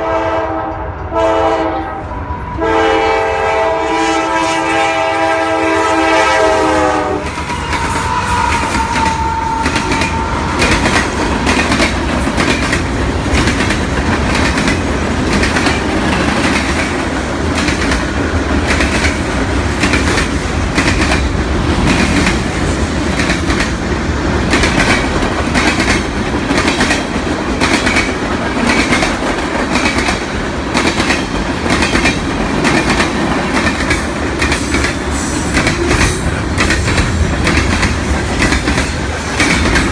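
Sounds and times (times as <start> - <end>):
train horn: 0.0 - 11.4
train wheels clacking over rail joints: 6.3 - 39.9.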